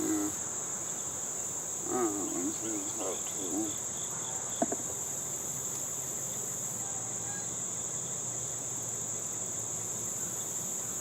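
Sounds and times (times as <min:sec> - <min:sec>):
honeybees buzzing: 0:00.0 - 0:05.4
crickets chirping: 0:00.0 - 0:11.0.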